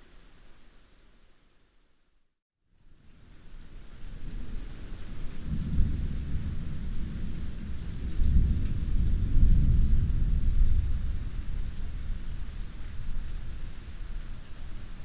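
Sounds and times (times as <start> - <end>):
heavy rain falling: 3.0 - 15.0
rolling thunder: 4.2 - 15.0.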